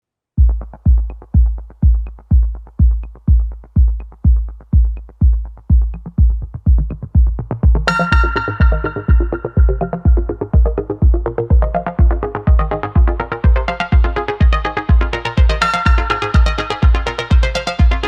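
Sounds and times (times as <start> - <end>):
deep kick drum: 0.4 - 18.0
bright synth: 7.8 - 12.8, 15.2 - 18.0.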